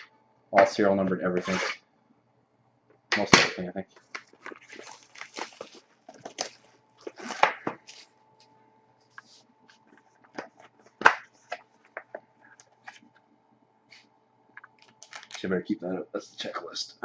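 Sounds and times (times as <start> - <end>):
faint steady hum: 0.0 - 17.0
packaging knocks and rustles: 4.0 - 8.1, 14.8 - 15.4.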